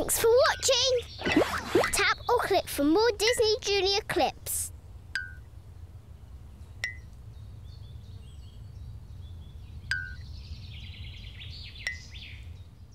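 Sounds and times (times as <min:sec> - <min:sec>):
birds chirping: 0:00.0 - 0:12.9
sharp clicks with ping: 0:05.1 - 0:05.4, 0:06.8 - 0:07.1, 0:09.9 - 0:10.2, 0:11.8 - 0:12.1.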